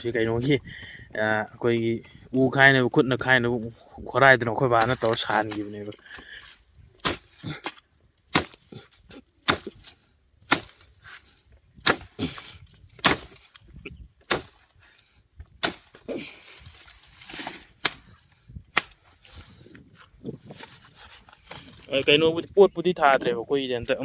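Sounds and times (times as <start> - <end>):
machete chopping: 7.0 - 13.6, 14.2 - 14.9, 15.6 - 16.3, 17.2 - 19.3.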